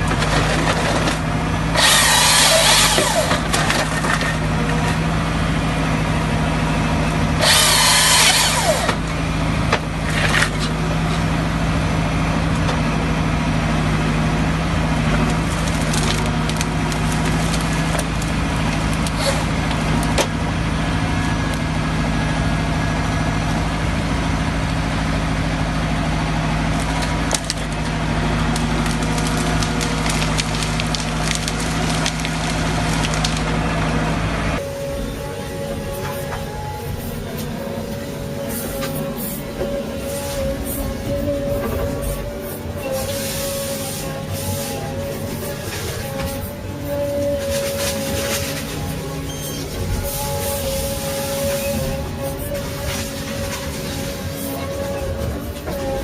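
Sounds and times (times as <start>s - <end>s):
chainsaw cutting timber: 1.7s - 3.9s, 7.4s - 9.0s.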